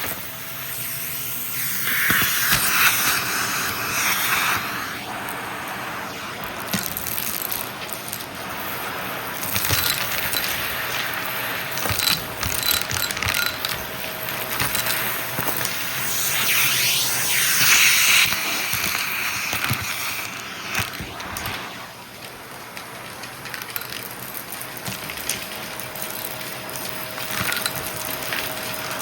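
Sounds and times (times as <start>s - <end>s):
vacuum cleaner running: 0.0s - 29.0s
debris clicking and rattling: 6.7s - 16.3s, 22.2s - 29.0s.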